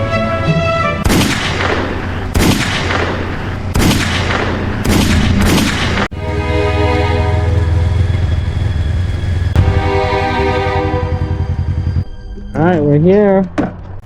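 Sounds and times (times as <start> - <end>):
loud sudden booms: 1.0 - 12.0
steady low hum: 1.1 - 12.4
music with held tones: 6.1 - 13.2.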